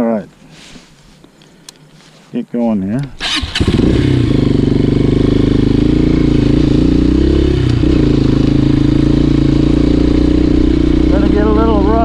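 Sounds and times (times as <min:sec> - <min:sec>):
motorcycle engine idling: 0:03.2 - 0:12.0.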